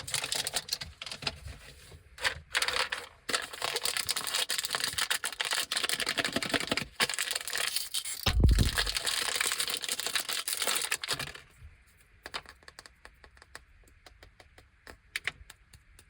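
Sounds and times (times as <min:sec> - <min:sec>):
plastic packaging crinkling: 0:00.0 - 0:11.5.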